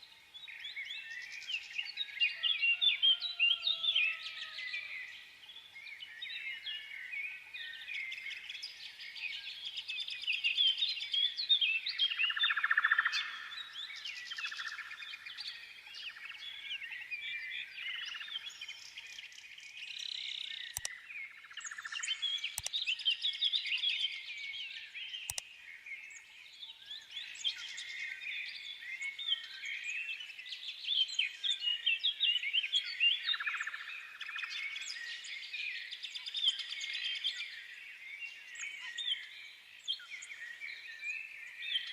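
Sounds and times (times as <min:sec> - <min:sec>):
small birds chirping: 0:00.0 - 0:41.9
sharp clicks: 0:20.6 - 0:21.0, 0:22.5 - 0:22.8, 0:25.3 - 0:25.5.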